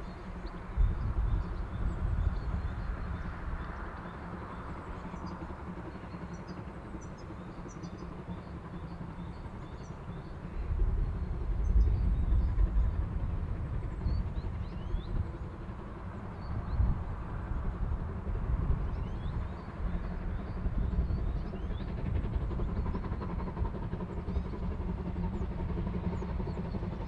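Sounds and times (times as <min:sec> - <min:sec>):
wind rumbling on microphone: 0:00.0 - 0:04.0, 0:10.5 - 0:23.8.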